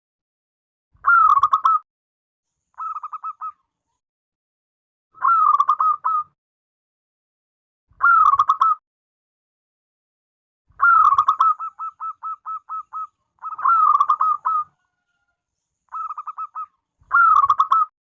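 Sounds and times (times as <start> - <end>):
dove cooing: 2.8 - 3.6, 10.8 - 15.0, 15.9 - 17.9.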